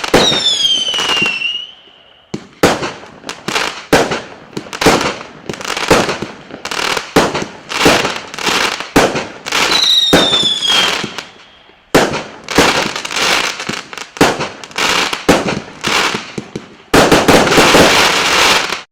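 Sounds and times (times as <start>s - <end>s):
firework falling whistle: 0.0s - 2.8s, 9.6s - 11.9s
dense firework crackling: 0.0s - 18.9s
firework bangs with crackling: 0.0s - 18.9s.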